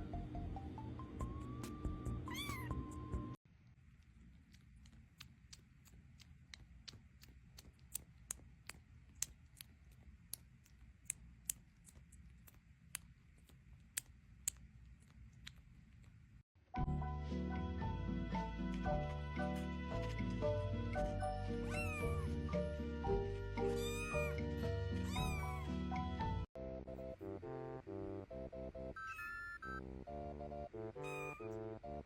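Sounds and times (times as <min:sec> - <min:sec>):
music: 0:00.0 - 0:03.4, 0:16.7 - 0:32.0
cat meowing: 0:02.3 - 0:02.7, 0:21.6 - 0:22.4, 0:23.6 - 0:24.4, 0:25.0 - 0:25.7, 0:29.0 - 0:29.5, 0:31.0 - 0:31.5.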